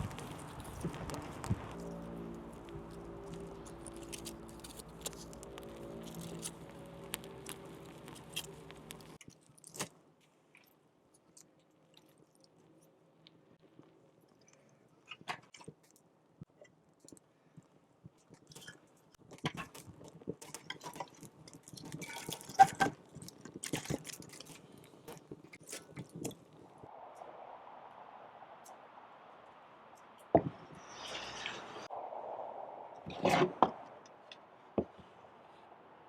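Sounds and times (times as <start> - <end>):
crunching and clicking: 0.0 - 16.0, 18.2 - 26.7
music: 0.8 - 9.2.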